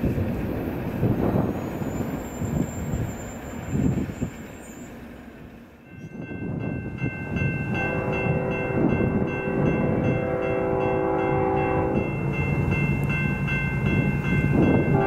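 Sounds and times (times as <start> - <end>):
freight train rumbling: 0.0 - 15.0
locomotive horn chord: 7.7 - 12.3.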